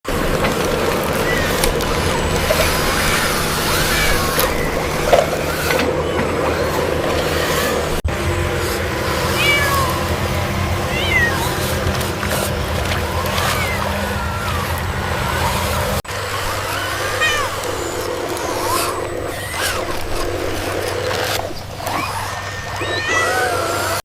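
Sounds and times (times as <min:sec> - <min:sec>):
kitten meowing: 0:09.3 - 0:10.1, 0:10.9 - 0:11.7, 0:16.8 - 0:18.0, 0:22.4 - 0:24.0.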